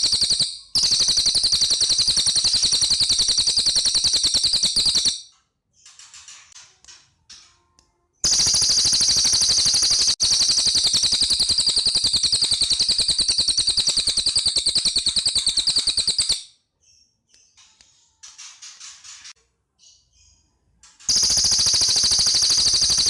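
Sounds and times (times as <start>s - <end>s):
songbird rattling trill: 0.0s - 5.3s, 8.2s - 16.5s, 21.1s - 23.0s
high bird chirping: 0.0s - 6.1s, 8.2s - 17.6s, 19.8s - 23.0s.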